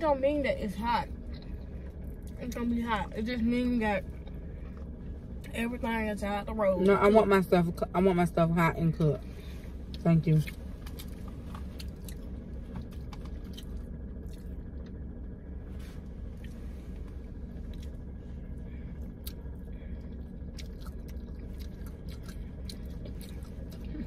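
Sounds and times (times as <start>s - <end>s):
steady low hum: 0.0s - 24.0s
person chewing: 10.4s - 14.6s, 19.0s - 24.0s.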